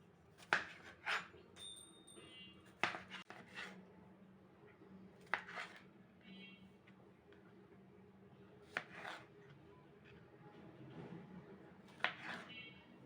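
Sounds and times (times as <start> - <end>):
ringing clinks: 1.6 - 2.5.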